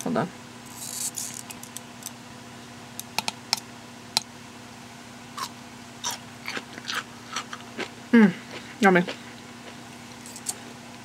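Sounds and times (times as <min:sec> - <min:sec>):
crunchy bites into pickles: 0:05.4 - 0:10.6
wet chewing crunches: 0:05.4 - 0:10.6.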